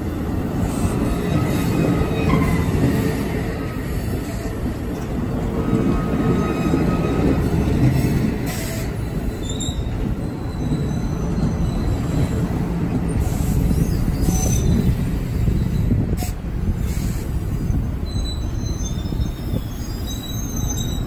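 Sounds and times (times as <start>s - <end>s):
steel wheels rumbling on rails: 0.0s - 21.0s
faint high wheel squeals: 8.5s - 12.5s, 16.9s - 21.0s.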